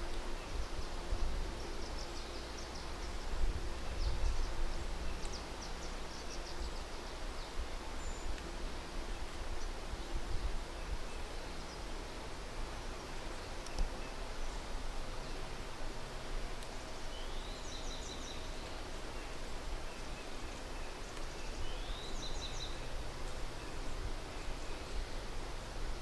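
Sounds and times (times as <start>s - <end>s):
songbird singing: 0.0s - 8.5s, 16.8s - 26.0s
outdoor background hiss: 0.0s - 26.0s.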